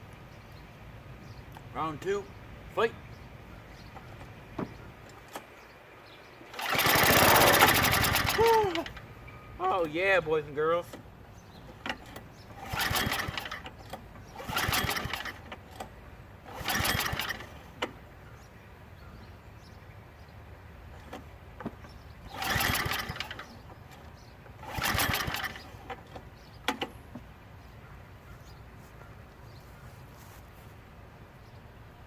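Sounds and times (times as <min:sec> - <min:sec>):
small gas engine cranking: 0:06.3 - 0:18.1, 0:20.8 - 0:27.4.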